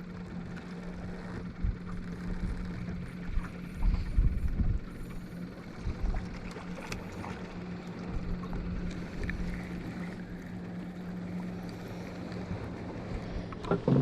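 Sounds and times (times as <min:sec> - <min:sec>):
boat motor humming: 0:00.0 - 0:14.0
wind rumbling on microphone: 0:01.5 - 0:07.4.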